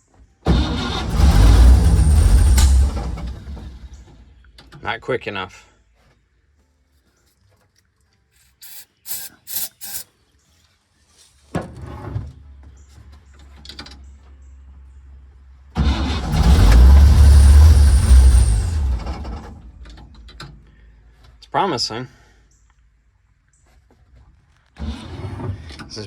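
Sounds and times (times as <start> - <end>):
truck engine cranking and starting: 0.2 - 4.9, 11.8 - 21.4, 24.7 - 26.0.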